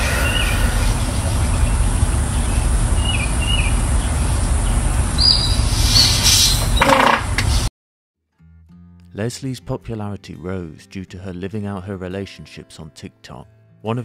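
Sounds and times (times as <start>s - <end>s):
steady low rumble: 0.0s - 5.9s
bird chirps: 0.1s - 6.9s.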